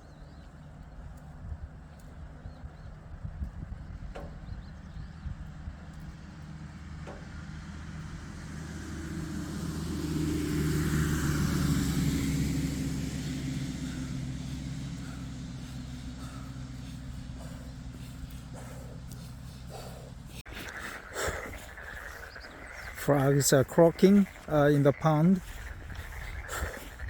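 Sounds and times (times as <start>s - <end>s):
car passing by: 6.2s - 20.4s.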